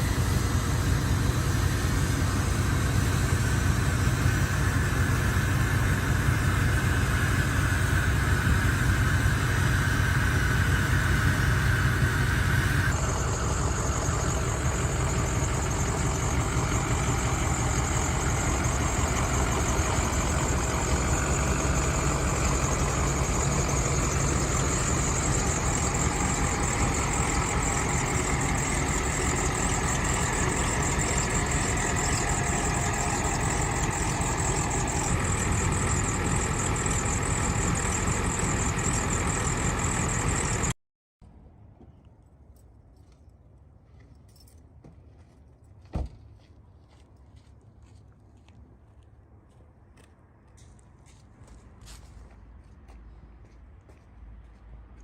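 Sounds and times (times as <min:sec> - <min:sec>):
diesel truck engine idling: 0:00.0 - 0:40.8.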